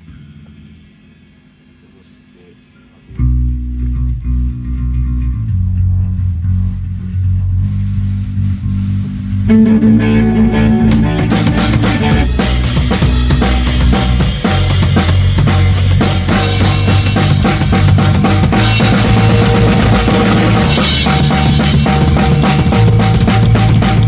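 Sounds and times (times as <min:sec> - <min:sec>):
bass guitar low notes: 0:03.0 - 0:24.0
electric guitar: 0:03.0 - 0:24.0
drums with cymbals: 0:05.8 - 0:24.0.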